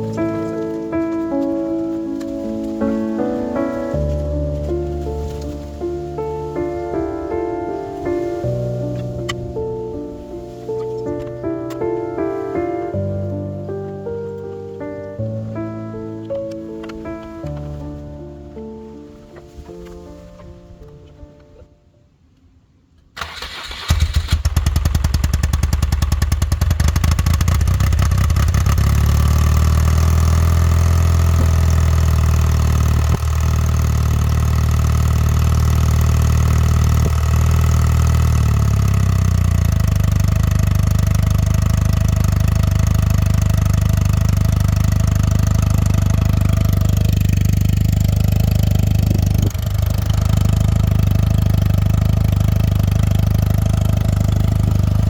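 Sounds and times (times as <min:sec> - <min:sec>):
motorcycle engine cranking and idling: 0:00.0 - 0:01.6, 0:02.2 - 0:12.4, 0:23.1 - 0:55.0.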